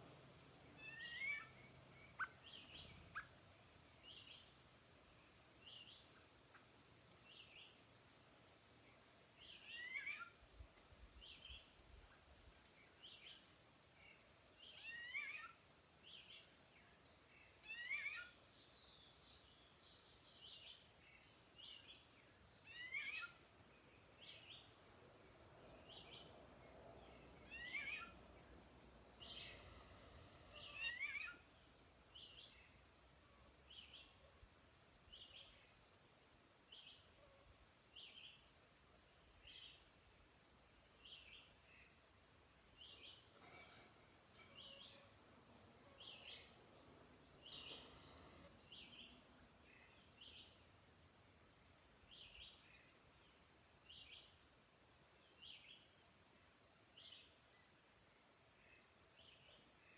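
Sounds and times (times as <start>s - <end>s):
faint bird chirps: 0.0s - 6.7s, 8.9s - 35.7s, 41.0s - 54.5s
hiss: 29.2s - 31.0s, 47.4s - 48.5s.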